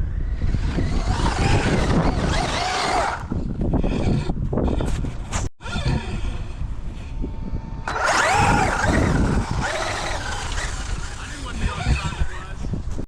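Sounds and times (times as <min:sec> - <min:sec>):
electric motor whining: 0:00.0 - 0:04.2, 0:07.6 - 0:12.6.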